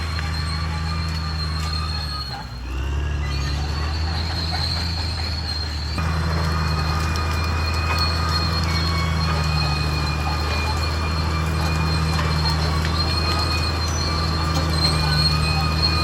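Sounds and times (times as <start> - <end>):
bulldozer diesel engine droning: 0.0 - 16.0
metallic track squeal: 0.0 - 16.0.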